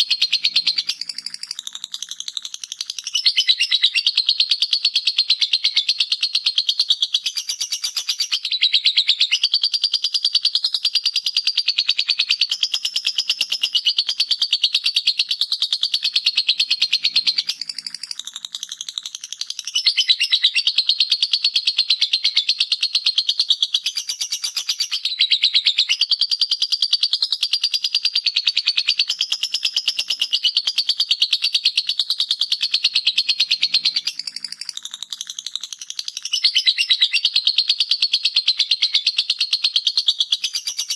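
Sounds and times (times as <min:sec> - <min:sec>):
lovebird chattering: 0:00.0 - 0:05.0, 0:15.0 - 0:21.1, 0:23.3 - 0:40.9.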